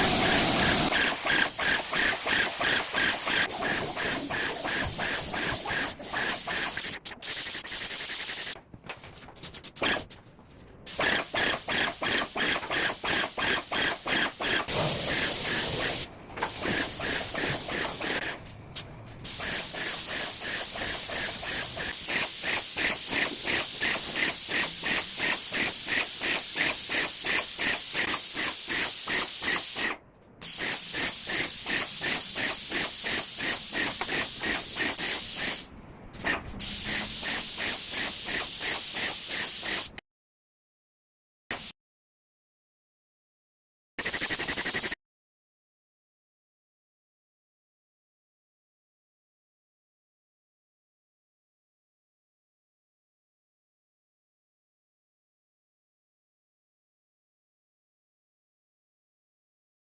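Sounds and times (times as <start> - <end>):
paint sprayer hissing: 0.0 - 8.6, 10.9 - 18.5, 19.2 - 40.0.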